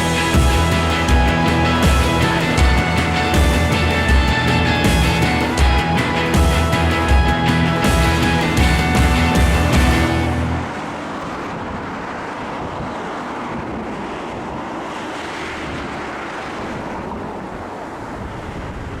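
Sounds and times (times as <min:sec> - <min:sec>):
wind blowing on microphone: 0:10.5 - 0:19.0
choppy lake water: 0:10.6 - 0:19.0.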